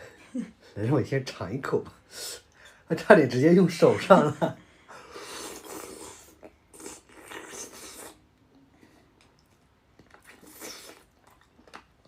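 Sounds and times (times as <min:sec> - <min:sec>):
person chewing food: 0:05.2 - 0:12.0.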